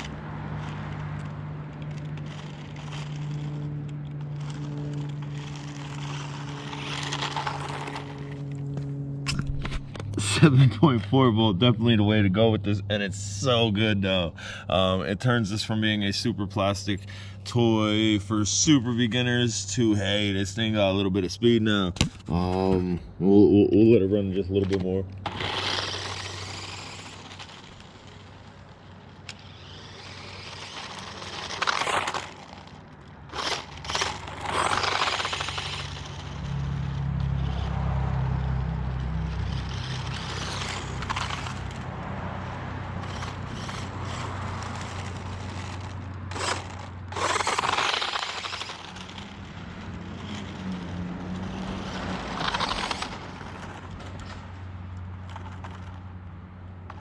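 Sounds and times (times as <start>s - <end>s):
rattling and scraping: 0.0s - 11.6s, 21.8s - 23.0s, 24.4s - 56.1s
toy truck motor and gears: 0.0s - 22.8s, 24.3s - 57.0s.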